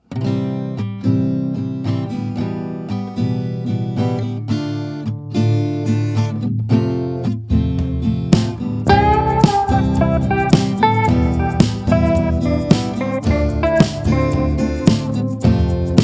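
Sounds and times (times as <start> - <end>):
strummed acoustic guitar: 0.0 - 16.0
plucked guitar notes: 7.5 - 16.0.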